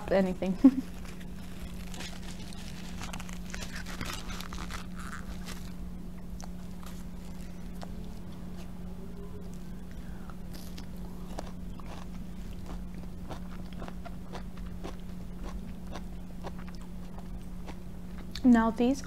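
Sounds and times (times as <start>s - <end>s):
steady low hum: 0.0s - 19.0s
paper napkin rustling: 0.6s - 5.8s.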